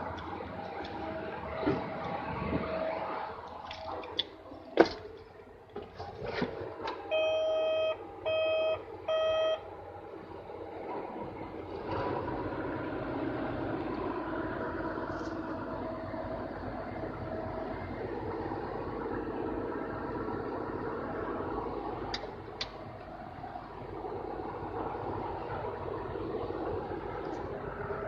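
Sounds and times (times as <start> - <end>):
heavy vehicle engine running: 0.0 - 28.0
electronic warning beeps: 7.1 - 9.6.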